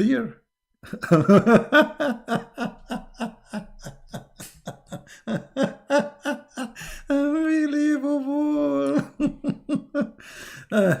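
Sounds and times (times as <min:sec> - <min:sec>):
man laughing: 0:00.8 - 0:11.0.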